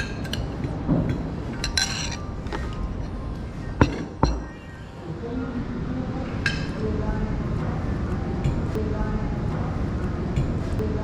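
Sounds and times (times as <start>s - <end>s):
cutlery and dishes clinking: 0.0s - 3.2s, 3.8s - 4.5s
background music: 0.0s - 11.0s.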